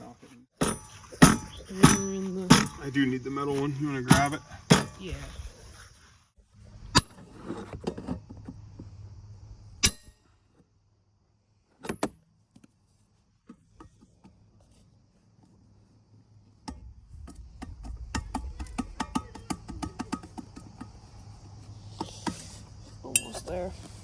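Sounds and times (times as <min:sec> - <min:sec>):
tools clanking on metal muffler: 0:00.5 - 0:05.0, 0:23.0 - 0:23.6.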